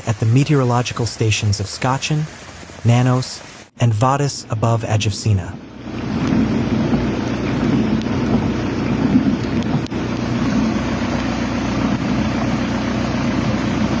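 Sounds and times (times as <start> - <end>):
rushing water: 0.0 - 14.0
storm wind: 5.5 - 14.0.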